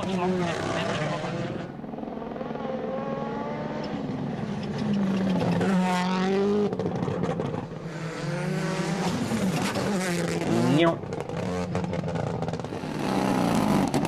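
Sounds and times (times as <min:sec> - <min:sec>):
rally car engine revving: 0:00.0 - 0:01.8, 0:02.4 - 0:14.0
exhaust crackles: 0:04.8 - 0:14.0.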